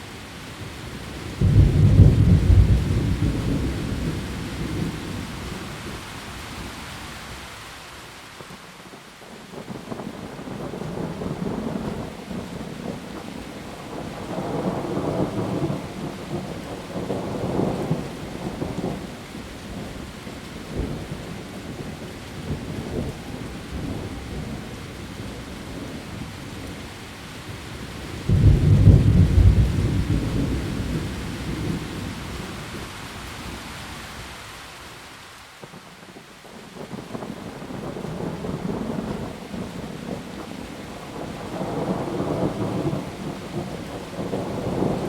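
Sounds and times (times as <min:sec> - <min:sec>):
heavy rain falling: 0:00.0 - 0:45.0
thunder rumbling: 0:01.3 - 0:05.5, 0:28.2 - 0:33.6, 0:36.9 - 0:45.0
loud thunderclap: 0:01.4 - 0:04.1, 0:28.3 - 0:31.9.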